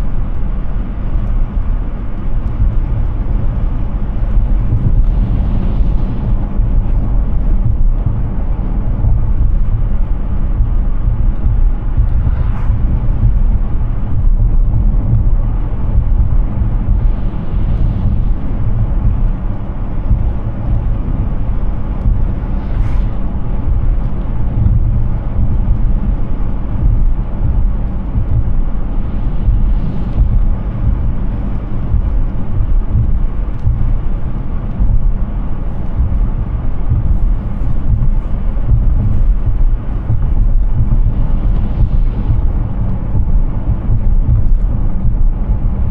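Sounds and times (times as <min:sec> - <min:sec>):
low road rumble: 0:00.0 - 0:45.9.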